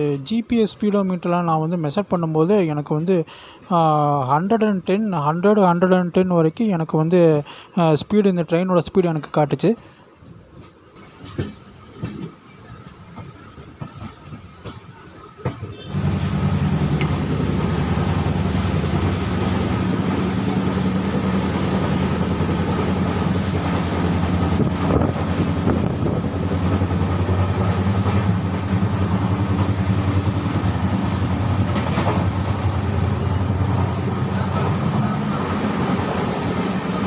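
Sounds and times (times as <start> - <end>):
train coach running rumble: 10.0 - 37.0.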